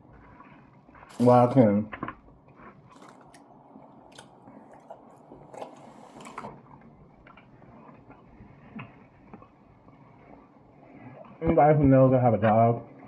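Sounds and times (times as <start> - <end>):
mouth chewing steak: 0.1 - 9.6.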